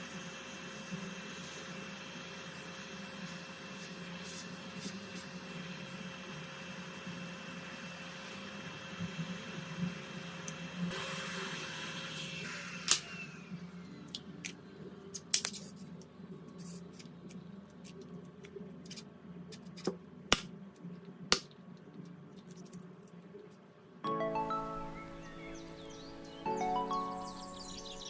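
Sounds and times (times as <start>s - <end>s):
small electric tool whirring: 0.0s - 14.0s.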